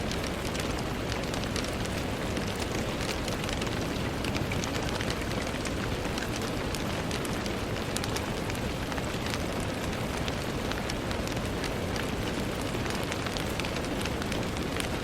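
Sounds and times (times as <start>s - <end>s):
rain on a window: 0.0s - 15.0s.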